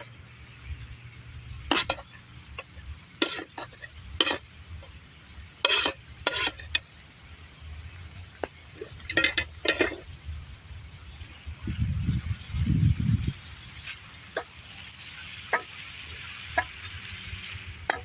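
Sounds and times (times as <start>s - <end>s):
low sizzle: 0.0s - 18.0s
spoon clinking and scraping pan: 1.6s - 5.0s, 5.6s - 6.9s, 8.7s - 10.1s, 14.3s - 18.0s.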